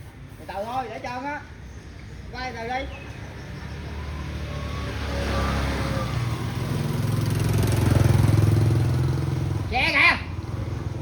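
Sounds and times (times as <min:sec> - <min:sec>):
vehicle engine approaching: 0:03.1 - 0:11.0.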